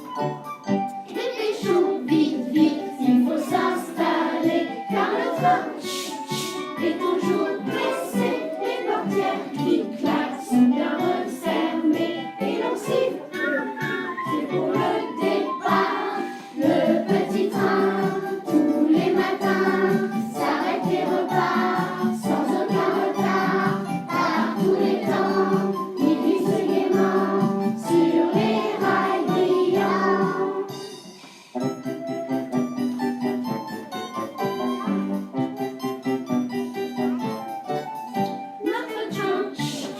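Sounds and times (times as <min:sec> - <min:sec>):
instrumental accompaniment: 0:00.0 - 0:39.9
children singing in unison: 0:01.2 - 0:30.8.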